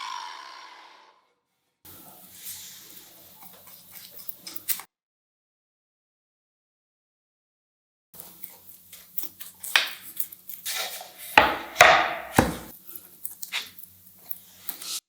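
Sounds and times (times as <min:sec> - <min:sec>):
tool scraping wood: 0:10.6 - 0:12.8
knocks on timber: 0:11.4 - 0:12.7.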